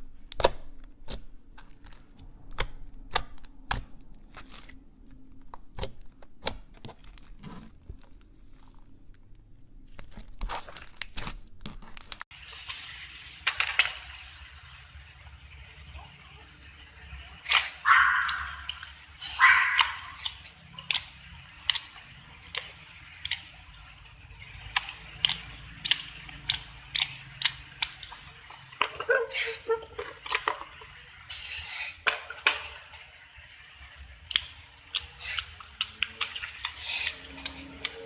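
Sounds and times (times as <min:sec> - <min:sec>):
slime squelches: 0:17.4 - 0:33.1.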